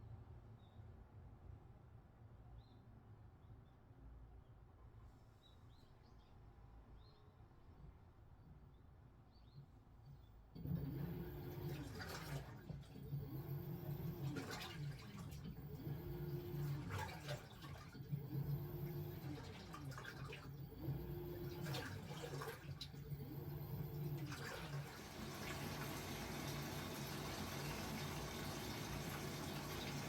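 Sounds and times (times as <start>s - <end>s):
washing machine agitating: 10.6s - 30.0s.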